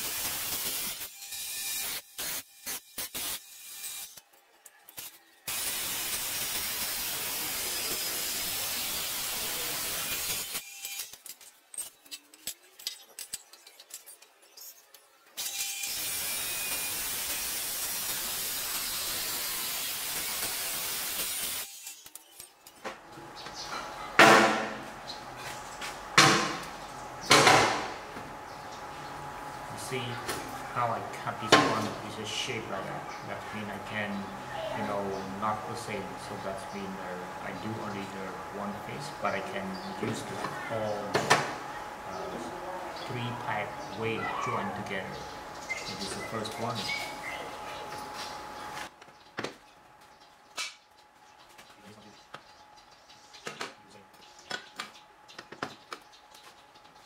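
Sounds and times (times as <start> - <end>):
power tool cutting steel pipe: 0.0 - 4.2, 5.0 - 11.2, 15.4 - 22.1.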